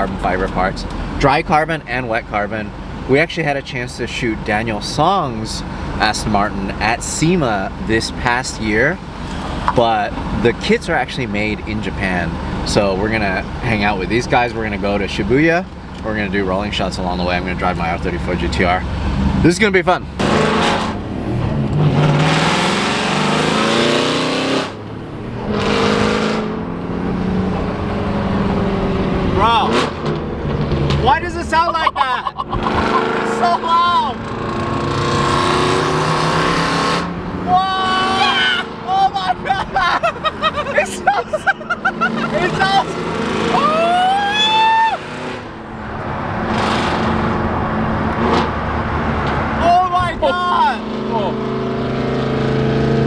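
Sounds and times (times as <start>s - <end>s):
engine wind and road noise: 0.0s - 53.0s
loud car exhaust revving: 17.3s - 31.1s, 32.4s - 38.9s, 39.7s - 49.6s.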